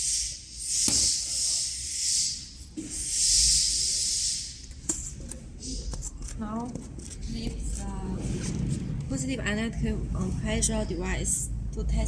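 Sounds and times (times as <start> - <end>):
air hissing from pressure tester: 0.0 - 5.0.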